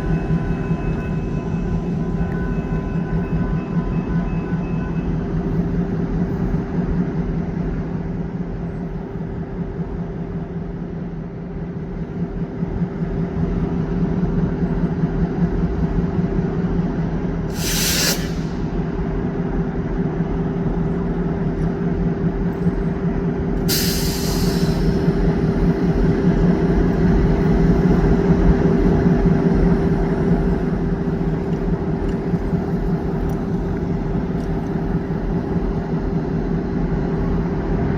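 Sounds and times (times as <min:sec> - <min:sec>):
diesel locomotive engine running: 0:00.0 - 0:37.9
air brakes hissing: 0:17.5 - 0:19.0, 0:23.6 - 0:25.2.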